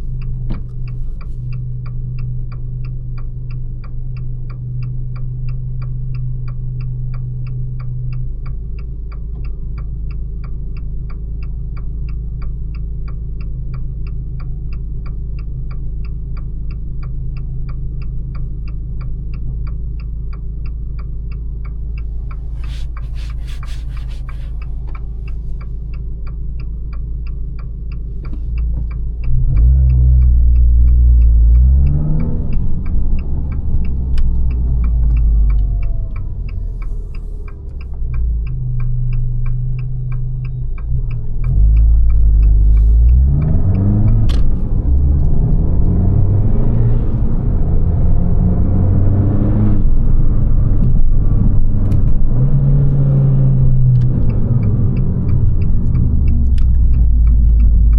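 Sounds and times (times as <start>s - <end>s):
turn signal ticking: 0.0s - 57.9s
car engine accelerating: 16.3s - 57.9s.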